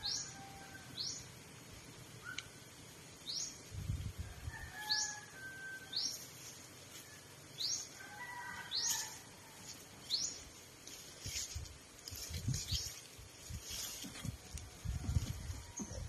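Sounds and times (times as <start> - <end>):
bird chirping: 0.0 - 1.3.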